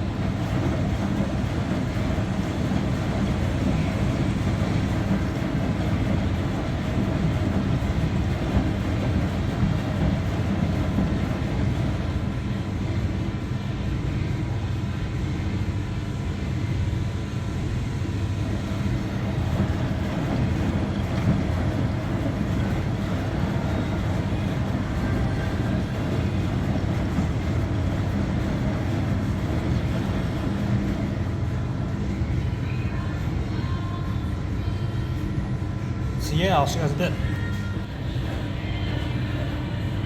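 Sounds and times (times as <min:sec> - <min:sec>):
washing machine running: 0:00.0 - 0:40.0.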